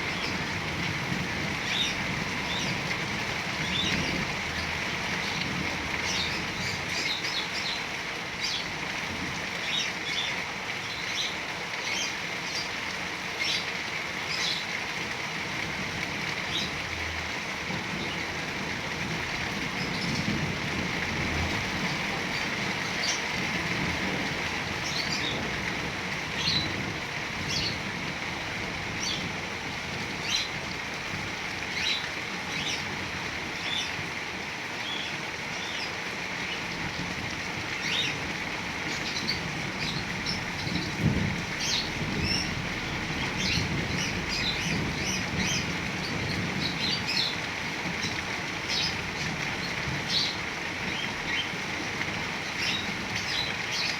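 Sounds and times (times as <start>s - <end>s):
heavy rain: 0.0s - 53.9s
birds chirping: 21.4s - 28.0s, 37.8s - 51.6s, 52.3s - 53.9s.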